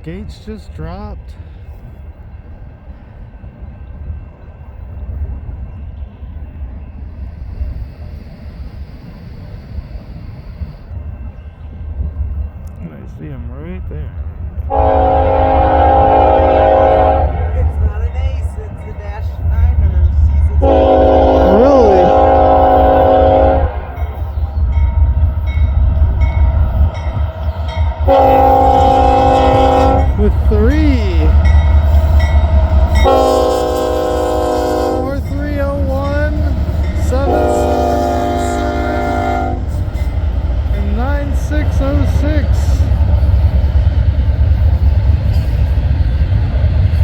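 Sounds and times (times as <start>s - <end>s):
diesel locomotive rumble: 0.0s - 47.0s
locomotive air horn chord: 14.7s - 17.5s, 20.6s - 24.1s, 27.7s - 31.4s, 32.2s - 35.3s, 36.9s - 39.7s
crossing bell ringing: 14.7s - 42.9s.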